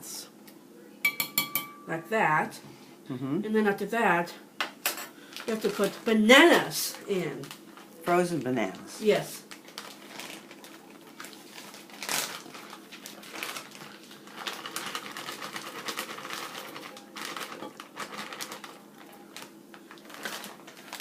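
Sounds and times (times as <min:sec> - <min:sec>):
crinkling: 0:05.3 - 0:21.0.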